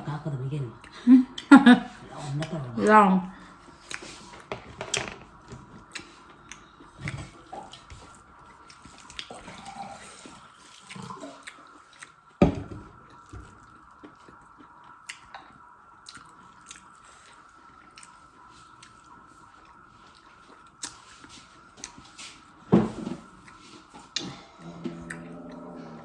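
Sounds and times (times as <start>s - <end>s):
faint high hum: 0.0s - 26.0s
wet chewing and mouth noises: 0.8s - 1.6s, 3.5s - 26.0s.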